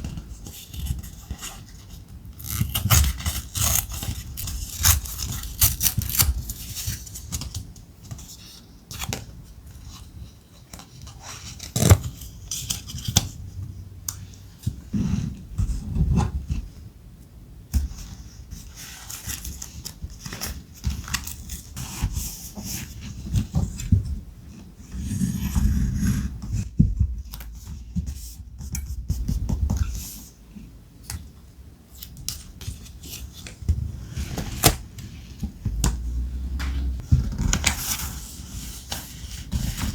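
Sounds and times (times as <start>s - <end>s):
paper rustling and scraping: 0.0s - 9.1s, 36.8s - 39.9s
scissor snips: 2.4s - 6.5s.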